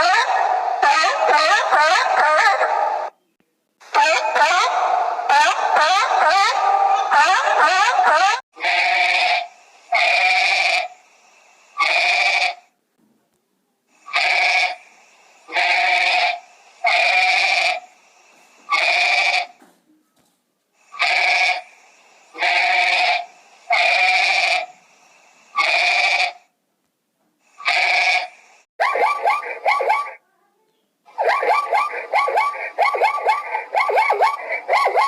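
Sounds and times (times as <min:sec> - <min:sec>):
animal bleating: 0:18.7 - 0:19.5, 0:21.0 - 0:21.6, 0:22.4 - 0:23.2, 0:25.6 - 0:26.4, 0:27.6 - 0:28.3.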